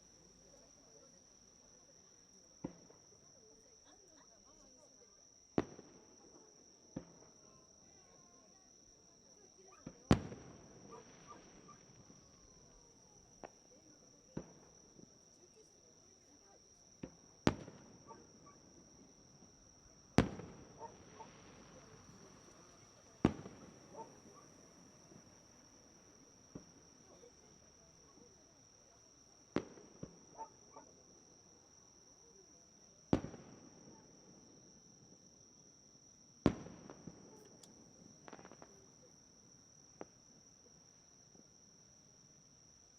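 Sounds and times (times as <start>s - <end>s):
fireworks bursting with bangs: 5.6s - 7.3s, 9.8s - 15.1s, 17.0s - 28.3s, 29.4s - 30.9s, 33.1s - 34.6s, 36.4s - 39.1s.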